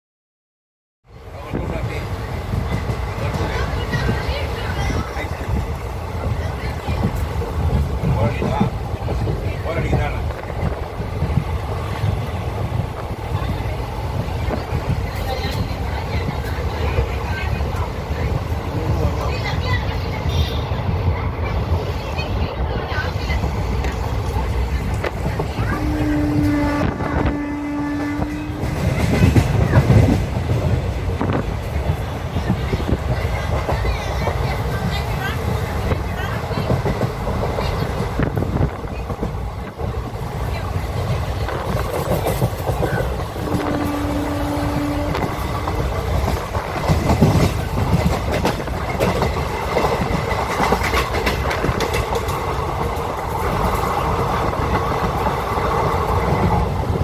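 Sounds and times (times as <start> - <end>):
train rumbling on rails: 1.0 - 57.0
wheels clacking over track: 21.3 - 57.0
long horn-like note: 25.7 - 28.9, 43.4 - 45.6.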